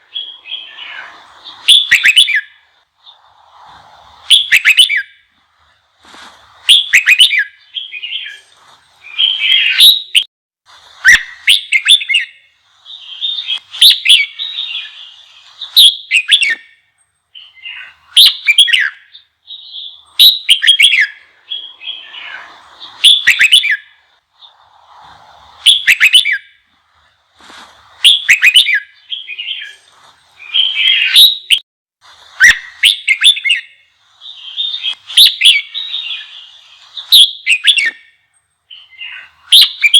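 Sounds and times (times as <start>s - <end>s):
bulbul singing: 0.0s - 3.3s, 11.0s - 24.7s, 32.4s - 39.9s.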